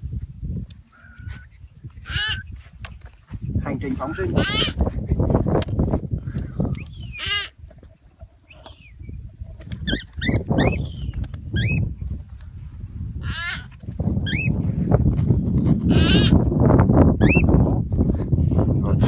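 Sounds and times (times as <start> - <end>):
parrot squawking: 1.0 - 2.5, 4.0 - 4.8, 7.1 - 7.5, 13.2 - 13.7, 15.9 - 16.4.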